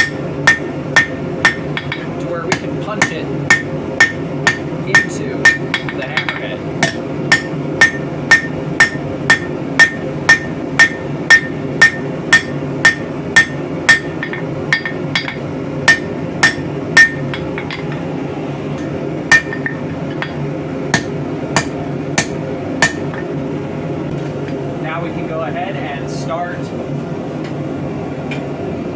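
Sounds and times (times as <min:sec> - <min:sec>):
hammer striking metal on anvil: 0:00.0 - 0:18.0, 0:18.8 - 0:23.3
steady low hum: 0:00.0 - 0:28.9.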